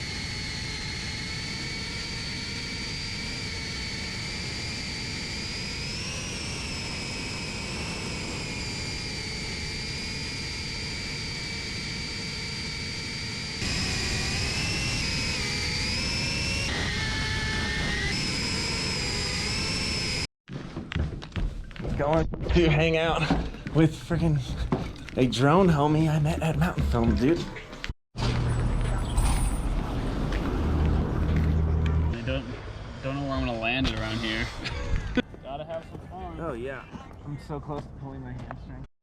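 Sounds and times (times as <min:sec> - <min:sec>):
drone motors whining: 0:00.0 - 0:20.3, 0:24.7 - 0:35.2.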